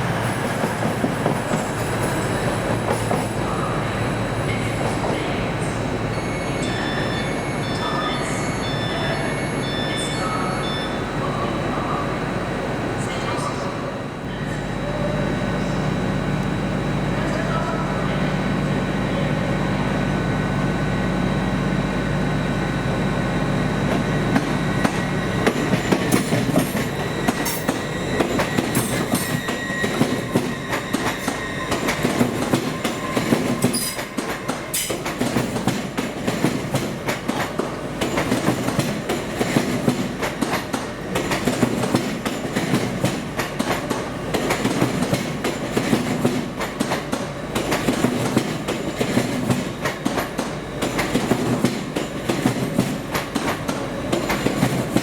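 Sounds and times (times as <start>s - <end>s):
train low hum: 0.0s - 55.0s
train wheels clattering: 23.9s - 55.0s
high-pitched wheel squeals: 24.8s - 34.9s.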